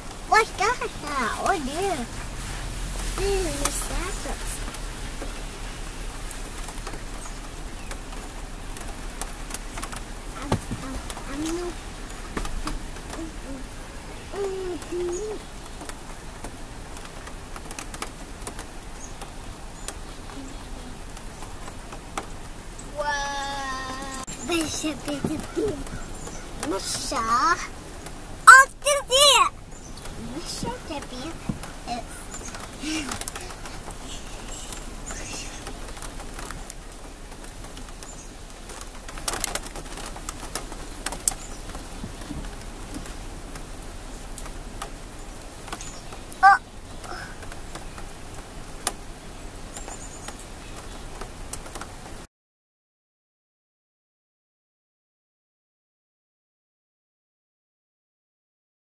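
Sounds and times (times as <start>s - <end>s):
background hiss: 0.0s - 52.3s
birds chirping: 0.3s - 2.3s, 3.2s - 17.5s, 18.6s - 51.2s
bird cooing: 14.3s - 15.4s.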